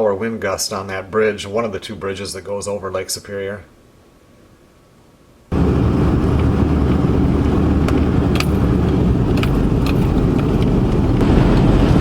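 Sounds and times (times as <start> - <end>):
road and wind noise in cab: 5.5 - 12.0.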